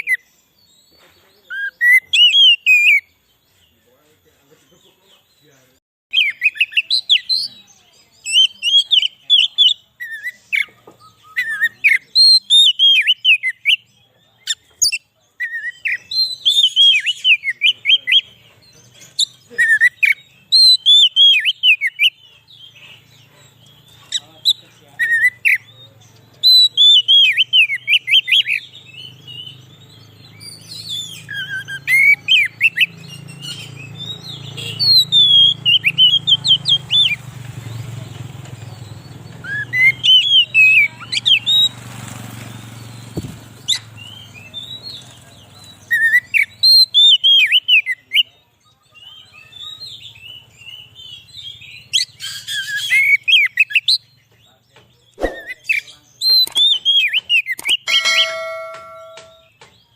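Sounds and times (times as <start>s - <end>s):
bird singing whistled phrases: 1.5s - 3.1s, 6.1s - 18.2s, 30.3s - 37.2s, 39.0s - 41.8s, 45.6s - 48.3s, 55.1s - 59.6s.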